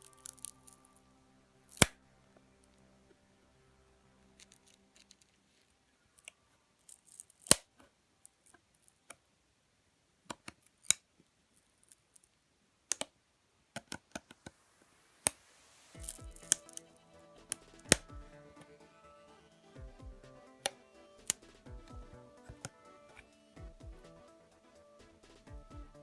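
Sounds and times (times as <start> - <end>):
background music: 0.0 - 6.3, 15.4 - 26.0.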